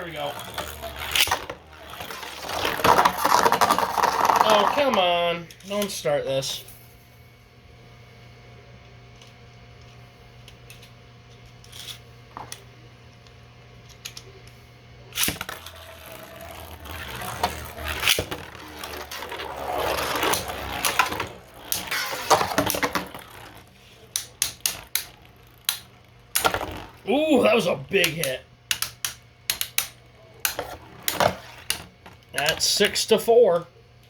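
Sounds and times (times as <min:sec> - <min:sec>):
spinning tops clattering: 0:00.0 - 0:04.8, 0:15.4 - 0:27.0.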